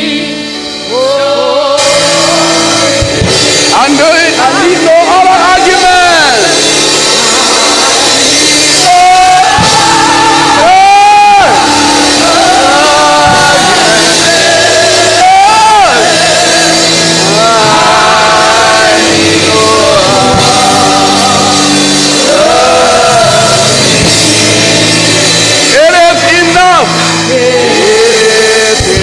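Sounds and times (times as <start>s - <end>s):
instrumental accompaniment: 0.0s - 29.0s
voices singing a gospel hymn: 0.0s - 29.0s.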